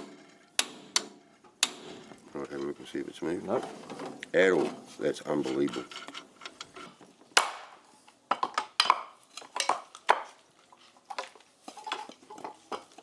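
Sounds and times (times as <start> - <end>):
hand tools clanking on metal: 0.0 - 7.0.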